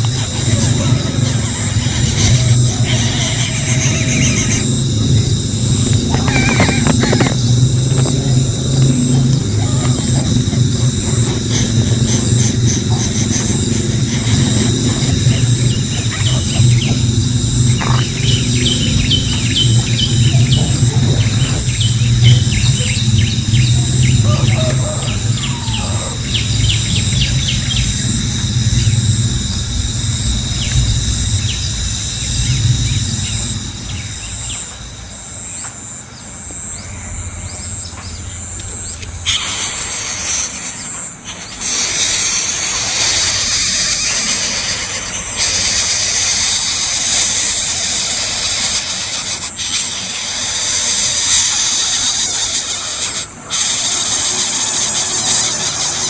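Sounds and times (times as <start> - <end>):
high bird chirps: 0.0 - 29.2
low rumble: 0.0 - 35.5
high-pitched insect drone: 0.0 - 56.0.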